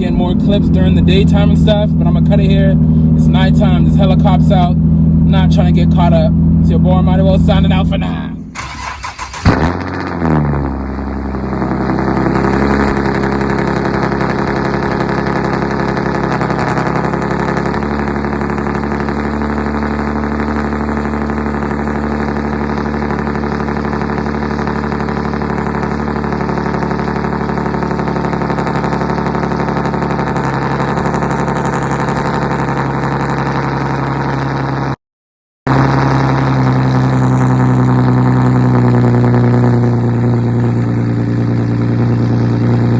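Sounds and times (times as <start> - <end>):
car engine idling: 0.0 - 35.0, 35.7 - 42.9
engine revving blip: 0.0 - 35.0, 35.7 - 42.9.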